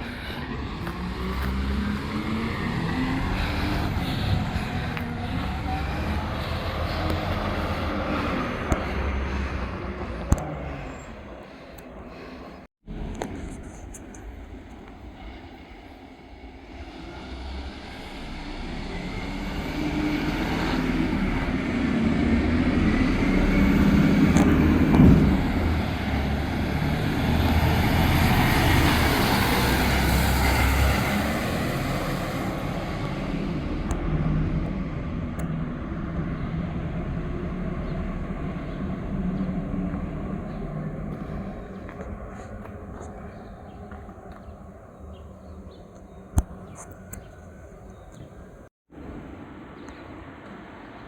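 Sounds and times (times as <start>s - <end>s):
truck engine running: 0.0s - 11.0s, 16.7s - 44.5s.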